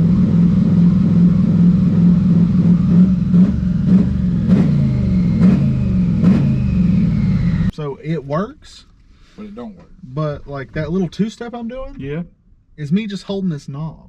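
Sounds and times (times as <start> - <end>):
stuttering engine with sharp pops: 1.2 - 7.7.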